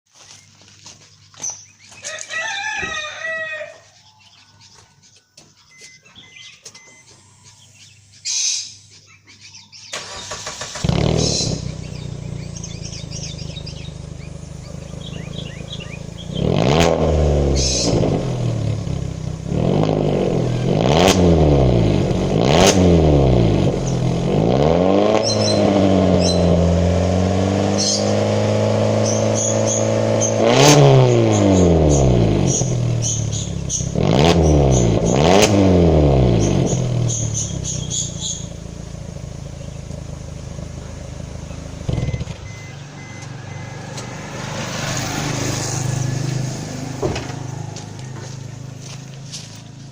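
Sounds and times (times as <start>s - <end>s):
car engine revving: 9.9s - 49.9s.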